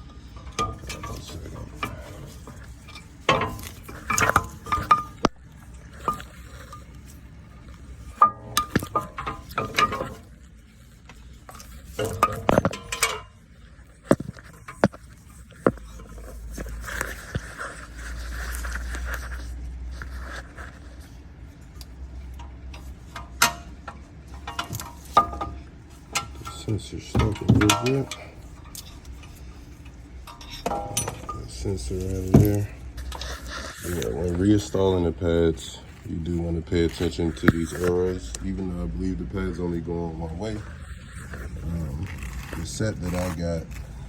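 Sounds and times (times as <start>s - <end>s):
metal brake parts clinking: 0.1s - 7.1s, 11.6s - 13.4s, 22.4s - 33.3s.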